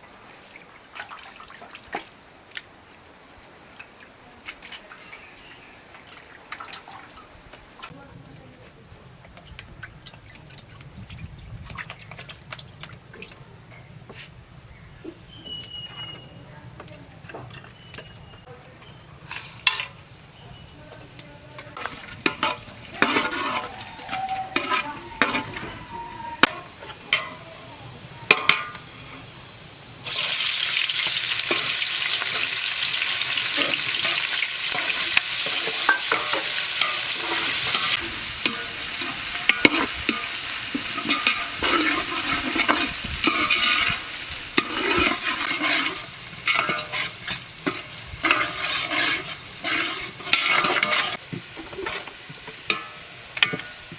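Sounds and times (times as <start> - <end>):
stirring and scraping pot: 17.2 - 20.0, 21.6 - 27.4, 33.4 - 53.9
food sizzling in hot oil: 21.8 - 27.4, 28.2 - 53.9
utensils clattering: 21.8 - 27.4, 33.5 - 53.9.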